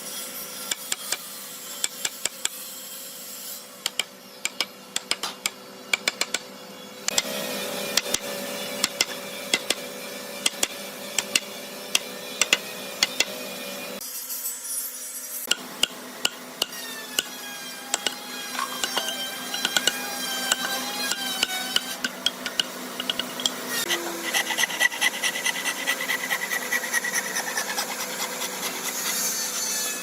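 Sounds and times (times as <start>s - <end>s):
hand tools tapping wood: 3.8s - 6.4s, 8.8s - 9.8s, 10.4s - 13.3s, 17.9s - 23.6s.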